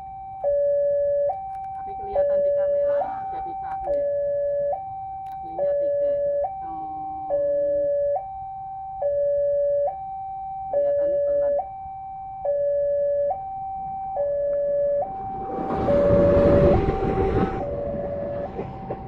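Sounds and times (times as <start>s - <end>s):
level crossing two-tone alarm: 0.0s - 19.0s
rushing noise: 14.9s - 19.0s.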